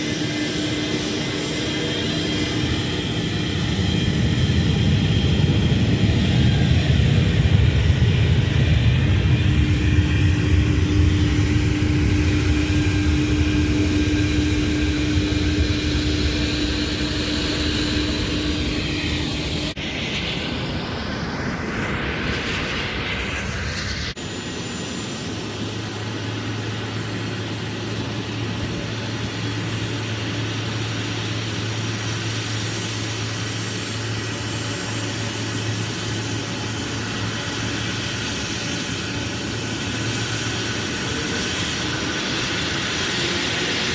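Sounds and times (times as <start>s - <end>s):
engine rumble with low hum: 0.0s - 20.2s
airliner engines: 0.0s - 43.9s.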